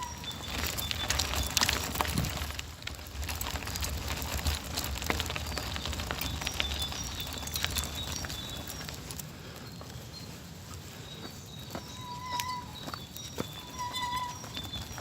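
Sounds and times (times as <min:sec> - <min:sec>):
birds chirping: 0:00.0 - 0:02.4, 0:05.0 - 0:15.0
wind rumble on microphone: 0:00.0 - 0:09.2.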